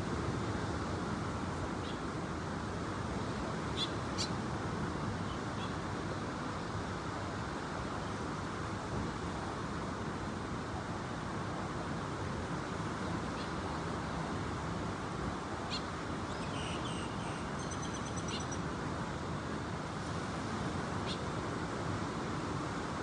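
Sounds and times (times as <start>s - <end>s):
wind: 0.0s - 23.0s
faint high bird chirps: 15.7s - 18.6s.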